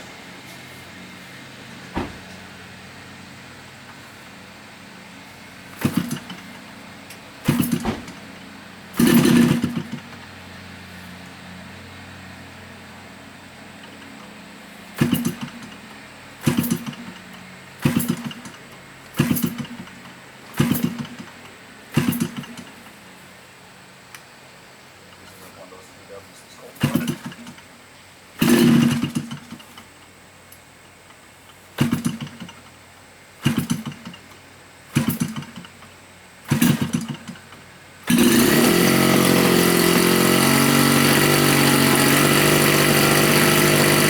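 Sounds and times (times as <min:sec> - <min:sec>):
model plane engine revving: 0:09.0 - 0:10.0, 0:28.4 - 0:29.2, 0:38.0 - 0:44.0.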